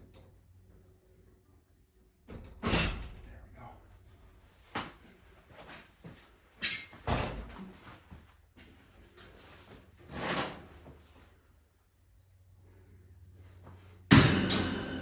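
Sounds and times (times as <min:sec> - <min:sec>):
heavy knock: 0:14.1 - 0:15.0
sharp metallic clink: 0:14.1 - 0:15.0.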